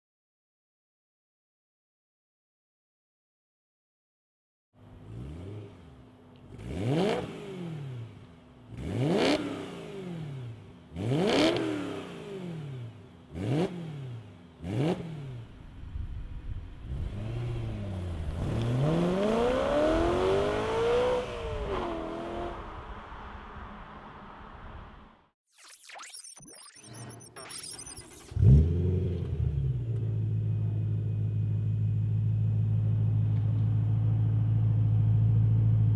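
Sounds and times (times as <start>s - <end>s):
car engine revving: 4.9s - 15.6s, 16.8s - 25.1s, 28.2s - 32.1s.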